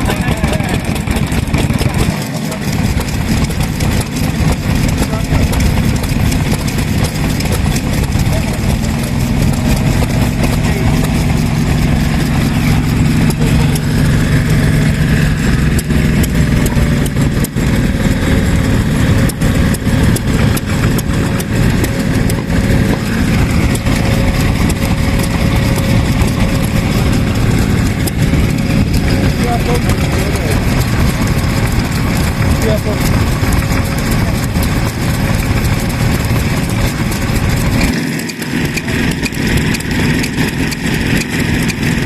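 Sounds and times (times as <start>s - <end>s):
sharp engine knocks: 0.0s - 42.0s
stationary engines running: 0.0s - 42.0s.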